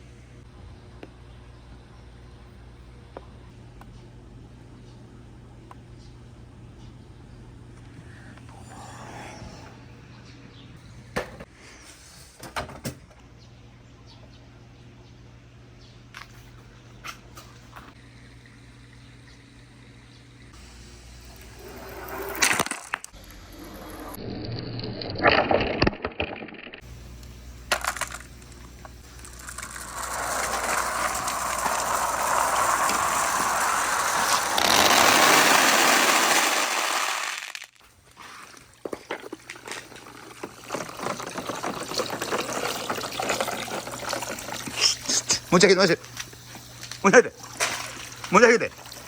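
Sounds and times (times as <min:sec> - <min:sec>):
marbles clacking and rolling: 0:29.2 - 0:37.8, 0:39.6 - 0:44.4.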